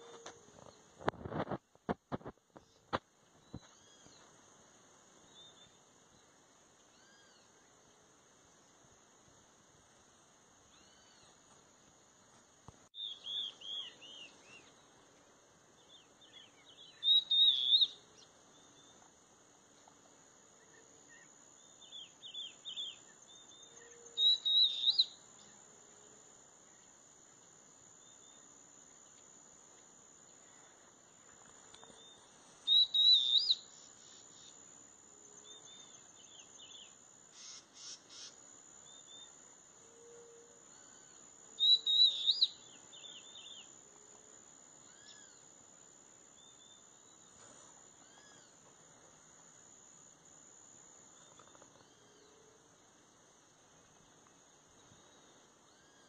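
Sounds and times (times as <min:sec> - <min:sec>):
insect drone: 0:00.0 - 0:56.0
bird chirping: 0:13.0 - 0:15.1, 0:15.8 - 0:19.1, 0:20.6 - 0:25.6, 0:31.8 - 0:34.6, 0:35.4 - 0:39.4, 0:40.7 - 0:43.8.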